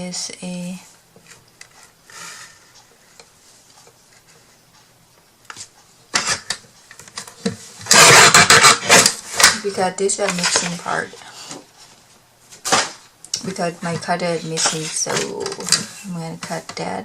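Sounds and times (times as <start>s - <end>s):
faint handling noises: 0.6s - 7.9s, 9.2s - 17.0s
rustling and clattering: 5.5s - 16.9s.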